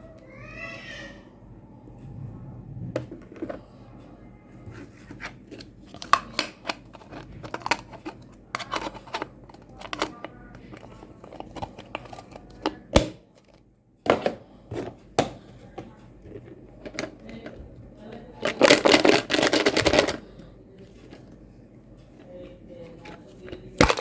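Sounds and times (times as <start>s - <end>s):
small objects clicking and rustling: 18.4s - 20.2s, 23.6s - 24.0s.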